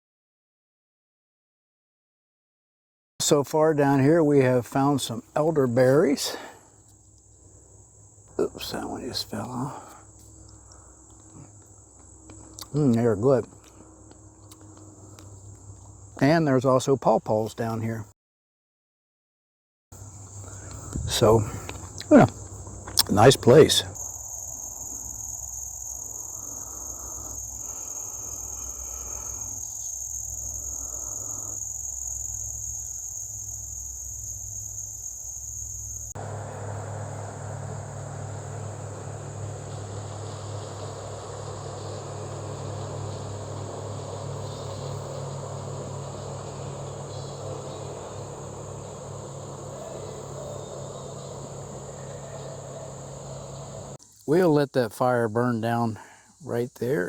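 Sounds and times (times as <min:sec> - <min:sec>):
insect chorus trilling: 0:03.3 - 0:18.1, 0:20.0 - 0:57.0
low steady hum: 0:20.0 - 0:54.0.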